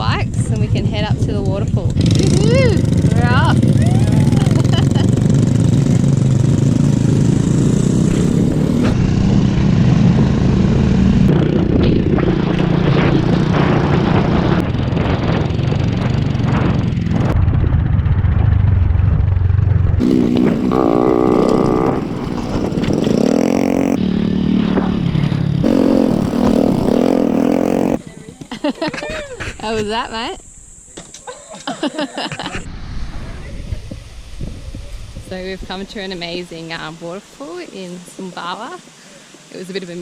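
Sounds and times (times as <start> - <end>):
motor scooter engines revving: 1.9 - 14.2, 20.0 - 24.6, 25.5 - 28.3.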